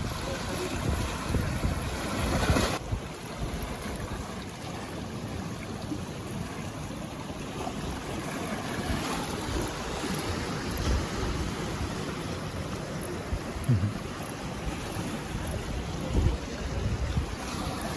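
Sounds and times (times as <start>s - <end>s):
strong wind buffeting microphone: 0.0s - 3.6s, 14.8s - 17.9s.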